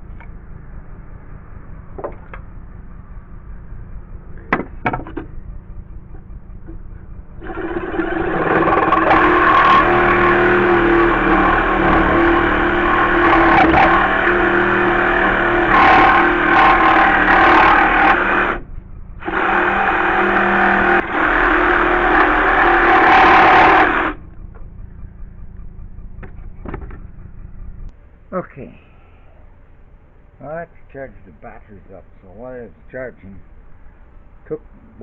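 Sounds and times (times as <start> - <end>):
jigsaw cutting wood: 7.4 - 18.6, 19.2 - 24.2.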